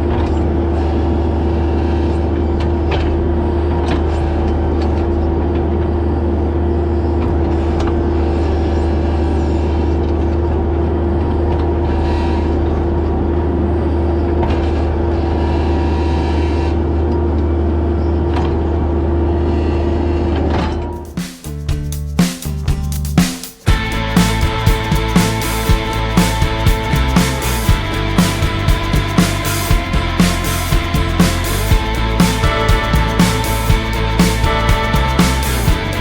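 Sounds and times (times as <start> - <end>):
music: 21.0 - 36.0
engine droning steadily: 23.7 - 36.0.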